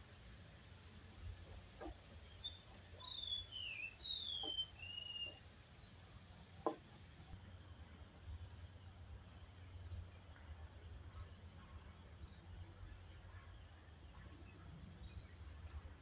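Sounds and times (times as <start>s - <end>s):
faint insect buzz: 0.0s - 8.0s
songbird whistling: 2.3s - 6.2s.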